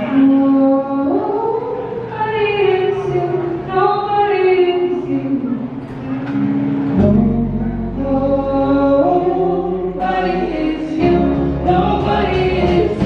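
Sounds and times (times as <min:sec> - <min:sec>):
low bass note: 0:07.0 - 0:13.0
voices singing in harmony: 0:07.0 - 0:13.0.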